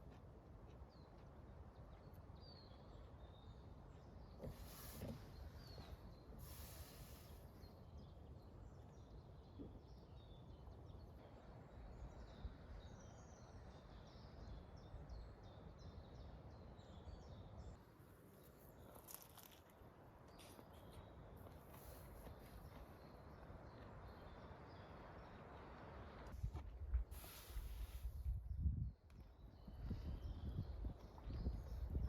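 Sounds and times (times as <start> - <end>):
faint birds chirping: 0.7 - 26.4, 27.1 - 32.0
brief hiss: 6.4 - 7.6, 27.1 - 28.4.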